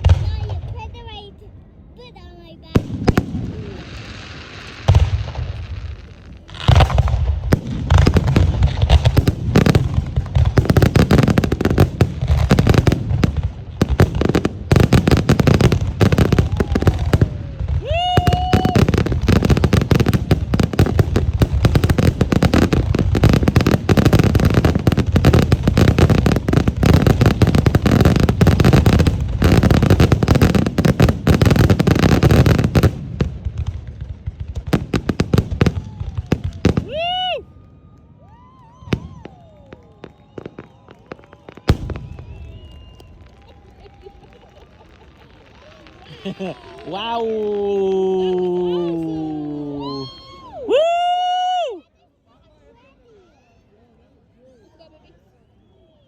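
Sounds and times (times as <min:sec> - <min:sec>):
fireworks bangs and crackles: 0:00.0 - 0:01.4, 0:02.6 - 0:50.4
firework rising whistle: 0:38.2 - 0:44.2.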